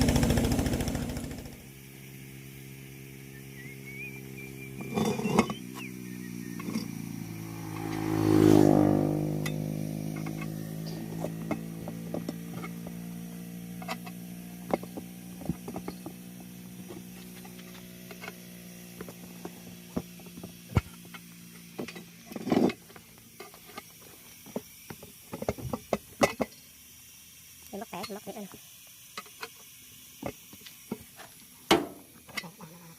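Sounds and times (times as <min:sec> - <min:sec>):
steady low hum: 0:00.0 - 0:24.3.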